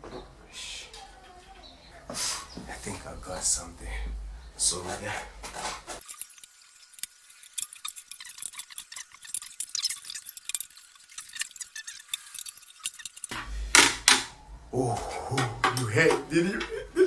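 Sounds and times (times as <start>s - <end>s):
metallic clinking and scraping: 6.0s - 13.4s.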